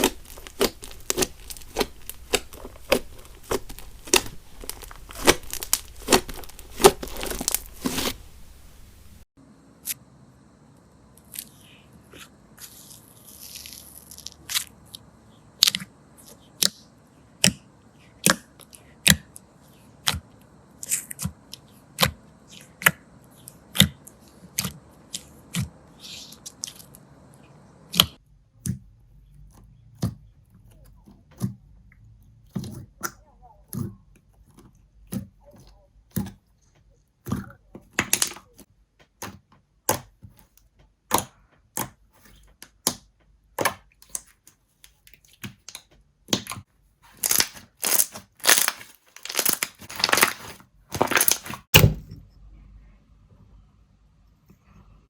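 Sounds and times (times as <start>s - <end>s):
slime crackling pops: 0.0s - 8.2s.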